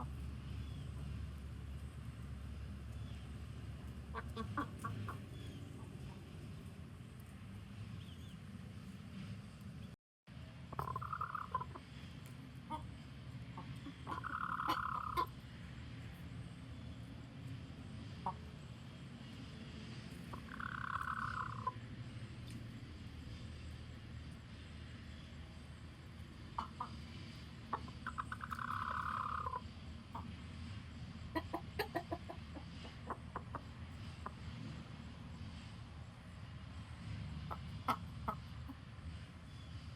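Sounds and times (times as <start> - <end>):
chicken warning call: 4.1 - 6.1, 10.7 - 12.0, 12.6 - 15.4, 18.2 - 18.8, 20.3 - 21.8, 26.4 - 30.4, 31.3 - 34.4, 37.4 - 38.8
chicken rattling call: 10.7 - 11.8, 13.8 - 15.3, 20.3 - 21.8, 27.7 - 29.6.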